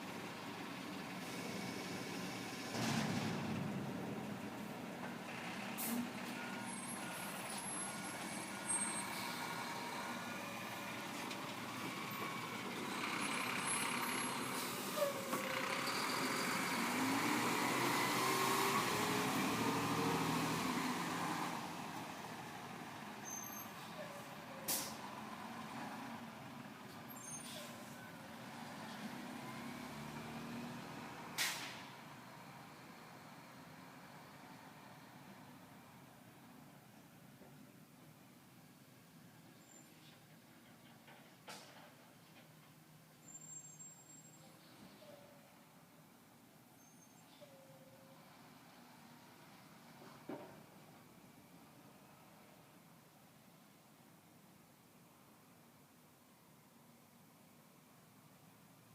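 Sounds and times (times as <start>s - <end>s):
air-brake blasts: 31.4s - 31.9s.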